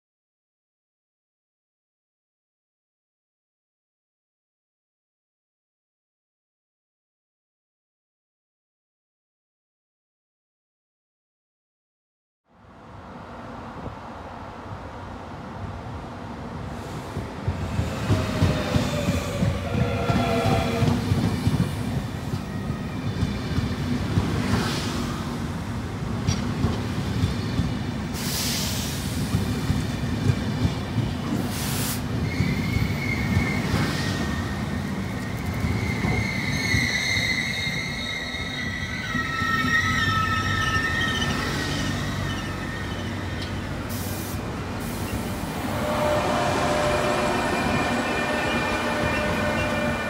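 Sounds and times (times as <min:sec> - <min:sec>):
train wheels rumbling on rail: 0:12.9 - 0:50.0
electric train whine: 0:32.2 - 0:50.0
squealing tones: 0:32.3 - 0:43.7, 0:45.0 - 0:50.0.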